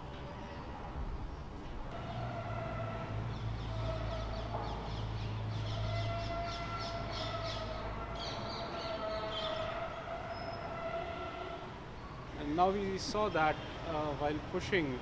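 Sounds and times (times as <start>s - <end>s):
birds calling and chattering: 3.1s - 10.7s.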